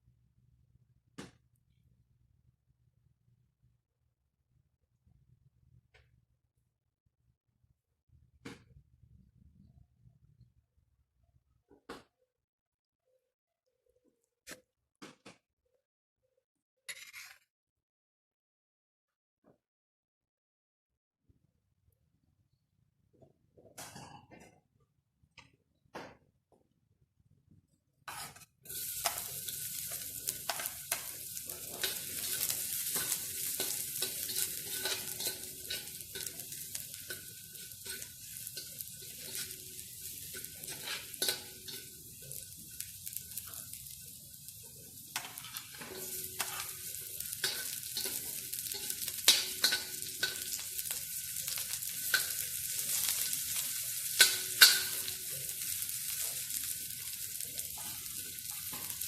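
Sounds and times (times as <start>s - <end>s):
utensil scraping a pan: 16.9s - 17.5s, 28.1s - 42.4s, 45.2s - 53.2s
food sizzling in a pan: 28.1s - 59.0s.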